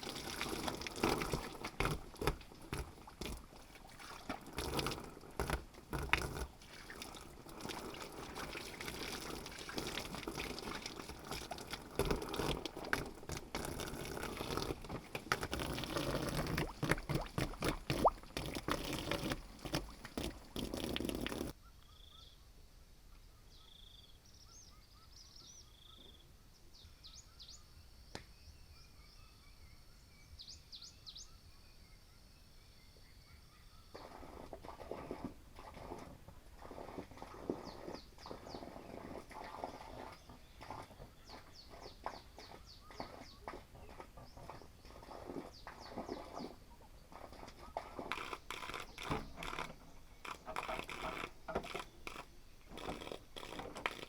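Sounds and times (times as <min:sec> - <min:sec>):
water pouring and splashing: 0:00.0 - 0:21.6, 0:34.0 - 0:54.0
faint bird chirps: 0:21.6 - 0:34.2.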